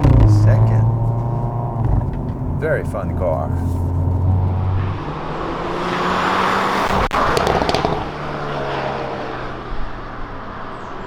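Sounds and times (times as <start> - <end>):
exhaust crack and crackles: 0.0 - 5.2, 5.8 - 8.4
car engine and exhaust: 0.0 - 11.0.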